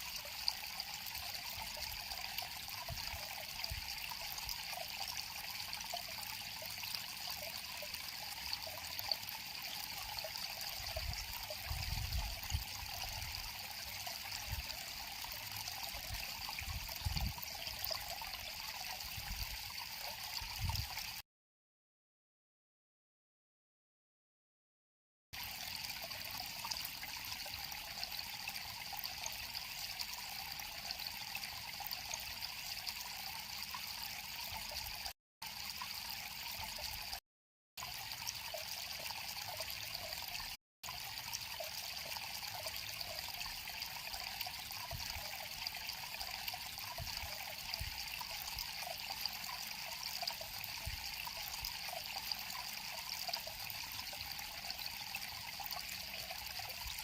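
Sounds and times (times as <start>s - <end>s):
river water flowing over stones: 0.0s - 19.3s, 37.8s - 57.0s.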